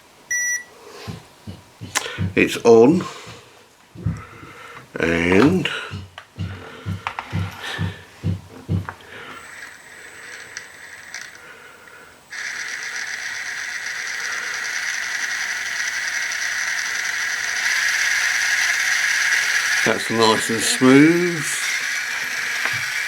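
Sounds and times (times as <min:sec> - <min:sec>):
electric motor whirring: 0:04.0 - 0:11.6, 0:12.3 - 0:23.0.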